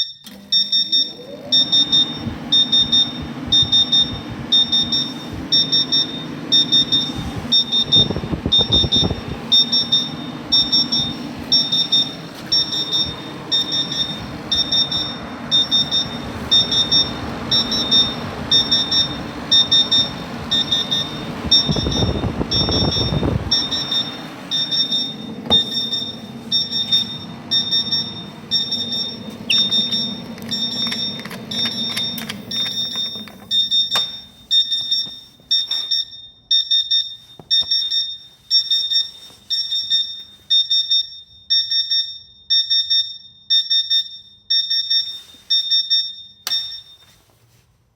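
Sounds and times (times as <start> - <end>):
alarm buzzer beeping: 0.0 - 47.2
low hum: 0.9 - 34.8
rustling noise: 38.2 - 40.7, 44.9 - 45.8, 46.8 - 47.9.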